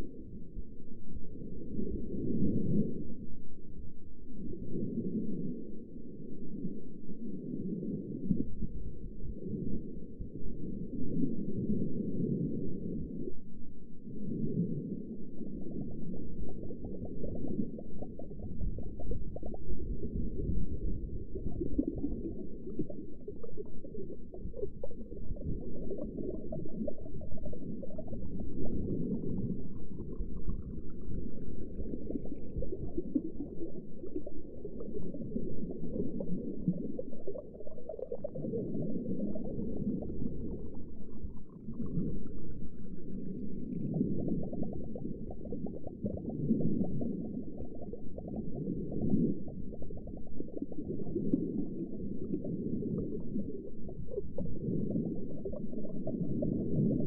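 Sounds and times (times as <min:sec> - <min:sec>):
underwater bubbling rumble: 0:00.0 - 0:57.0.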